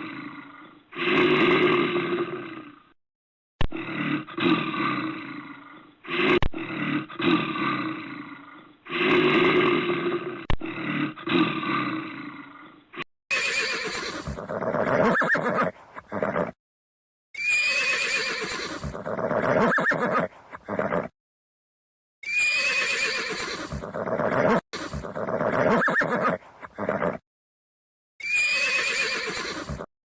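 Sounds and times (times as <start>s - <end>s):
bear roaring: 0.0s - 3.0s, 3.6s - 13.0s
horse neighing: 13.3s - 16.6s, 17.4s - 21.1s, 22.2s - 27.2s, 28.2s - 29.9s.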